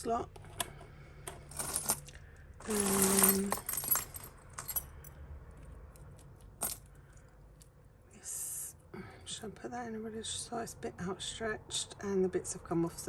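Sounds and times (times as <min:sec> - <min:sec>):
jewellery clinking and jangling: 0:01.2 - 0:07.8.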